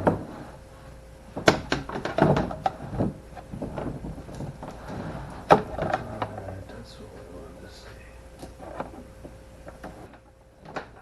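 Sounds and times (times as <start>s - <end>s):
cable rattling: 0.0s - 7.3s, 8.4s - 11.0s
knocks inside plastic kayak hull: 1.4s - 6.1s.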